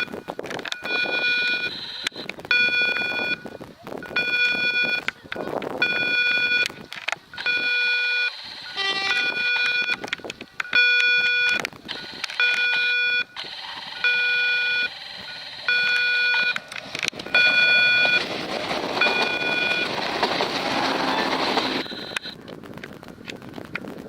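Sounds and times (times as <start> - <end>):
level crossing warning tone: 0.0 - 5.1, 5.8 - 6.8, 7.4 - 18.3, 18.9 - 22.4
passing train rushing: 16.6 - 22.3.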